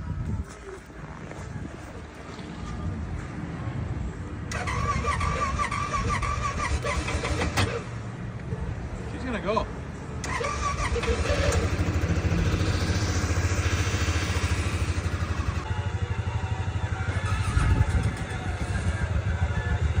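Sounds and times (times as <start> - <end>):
atv engine idling: 10.2 - 20.0.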